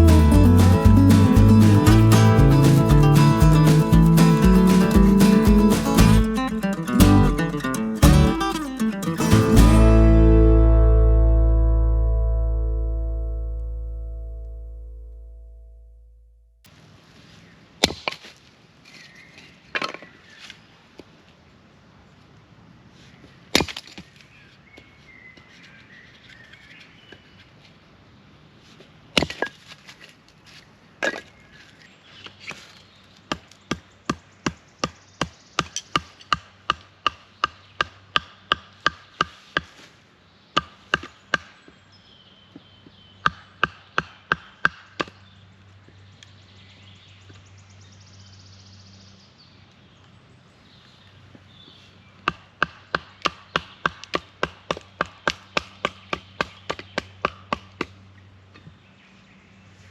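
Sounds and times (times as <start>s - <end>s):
wood being chopped: 43.3s - 45.2s, 52.3s - 58.0s.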